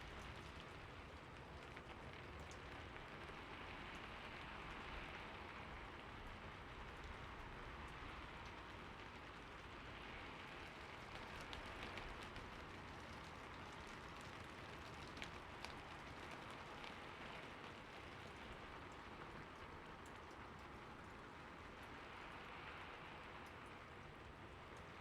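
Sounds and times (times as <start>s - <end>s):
soft steady rain: 0.0s - 25.0s
raindrops ticking: 5.6s - 25.0s.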